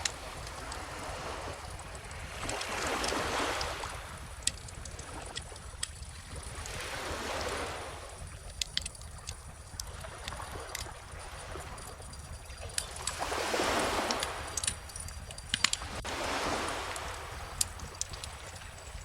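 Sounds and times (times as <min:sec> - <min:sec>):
ocean waves washing ashore: 0:00.0 - 0:19.0
bonfire crackling and popping: 0:08.2 - 0:19.0.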